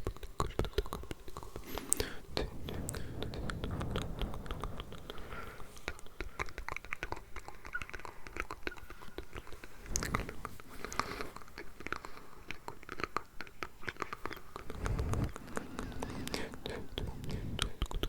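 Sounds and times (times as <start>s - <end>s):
wet lip and tongue clicks: 0.0s - 5.2s, 5.8s - 10.1s, 10.9s - 14.7s
breathy rush: 14.6s - 18.0s.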